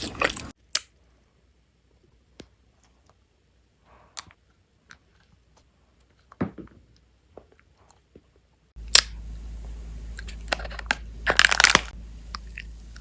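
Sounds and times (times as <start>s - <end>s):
chewing crunchy candy: 0.0s - 0.6s, 10.2s - 13.0s.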